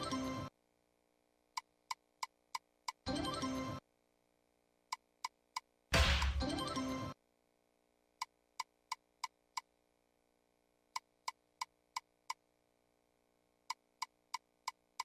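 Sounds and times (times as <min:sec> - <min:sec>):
slot machine electronic blips: 0:03.1 - 0:03.8, 0:06.0 - 0:07.2.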